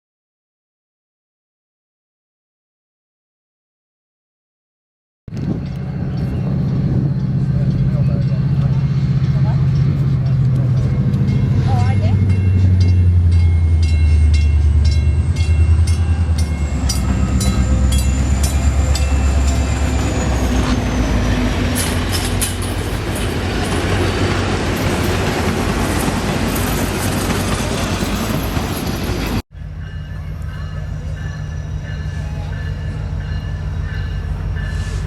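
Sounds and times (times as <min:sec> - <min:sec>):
train rumbling past: 0:05.3 - 0:35.0
high-pitched wheel squeal: 0:16.1 - 0:22.3
wheels clicking over rail joints: 0:21.7 - 0:29.4.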